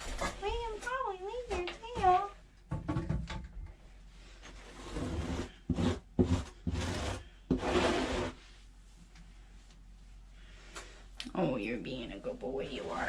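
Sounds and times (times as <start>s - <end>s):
brush rasping on cat fur: 4.7s - 8.5s.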